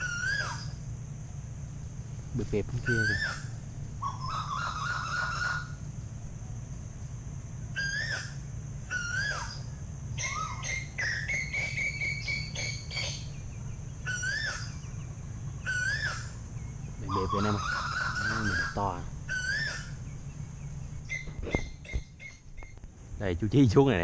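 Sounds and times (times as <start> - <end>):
whistled bird call: 0.0 - 0.8, 2.9 - 5.8, 7.8 - 22.8
warbling bird note: 17.0 - 20.3.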